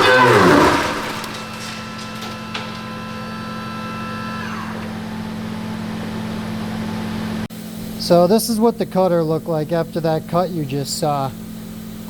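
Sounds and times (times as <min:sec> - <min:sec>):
milling machine cutting whine: 0:00.0 - 0:07.5
machine hum with held tones: 0:00.0 - 0:08.0.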